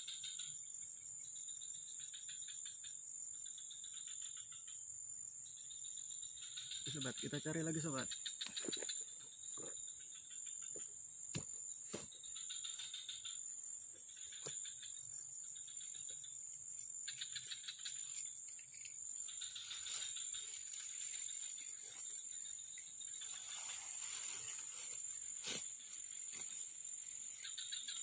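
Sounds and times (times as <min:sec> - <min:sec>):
insects droning: 0:00.0 - 0:28.0
rapid chirping trills: 0:05.6 - 0:10.8, 0:12.1 - 0:28.0.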